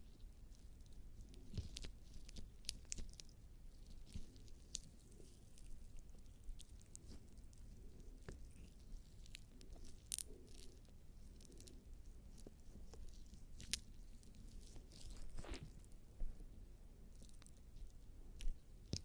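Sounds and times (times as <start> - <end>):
sticky crackles and clicks: 0.0 - 16.0, 17.1 - 19.0
wet squishing: 0.0 - 16.0
skin rubbing on microphone: 3.8 - 16.4.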